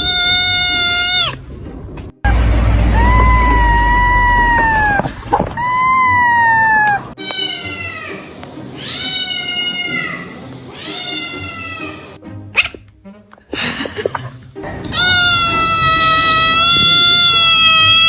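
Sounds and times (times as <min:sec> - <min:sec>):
cat meowing: 0:00.0 - 0:01.4, 0:03.0 - 0:08.2, 0:08.8 - 0:12.0, 0:14.9 - 0:18.0.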